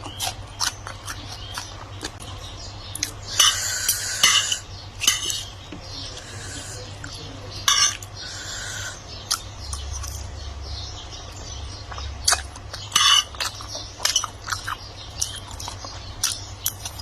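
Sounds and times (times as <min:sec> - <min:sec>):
mouth sounds of eating: 0:00.0 - 0:10.4, 0:11.4 - 0:17.0
low steady hum: 0:00.0 - 0:17.0
utensils clinking against dishes: 0:03.0 - 0:06.0, 0:06.8 - 0:08.2, 0:11.9 - 0:17.0.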